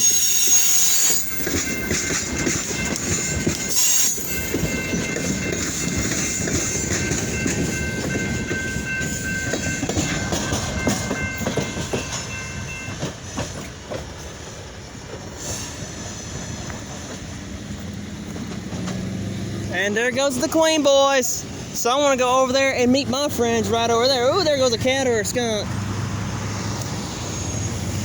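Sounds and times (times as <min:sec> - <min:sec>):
high-pitched wheel squeal: 0:00.0 - 0:02.0, 0:03.7 - 0:05.0, 0:27.0 - 0:28.0
train wheels clattering on rails: 0:00.0 - 0:28.0.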